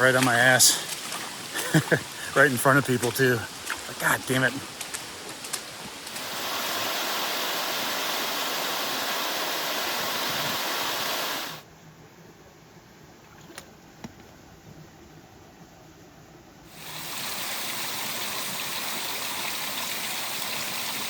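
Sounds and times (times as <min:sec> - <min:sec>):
flowing creek water: 0:00.0 - 0:11.7, 0:16.7 - 0:21.0.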